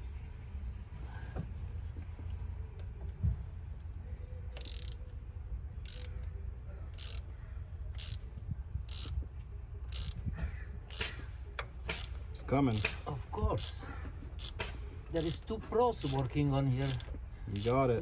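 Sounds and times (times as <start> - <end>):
steady low hum: 0.0 - 18.0
hand ratchet clicking: 4.6 - 5.1, 5.8 - 6.3, 7.0 - 7.3, 7.9 - 8.2, 8.9 - 9.2, 9.9 - 10.2, 10.9 - 11.2, 11.9 - 13.0, 13.6 - 13.8, 14.4 - 18.0.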